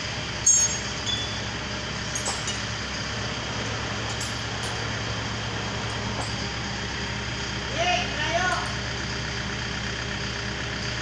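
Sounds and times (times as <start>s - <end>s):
truck engine humming: 0.0s - 11.0s
light metallic clinks: 0.5s - 3.0s, 4.0s - 5.1s, 5.8s - 6.8s, 8.4s - 8.9s.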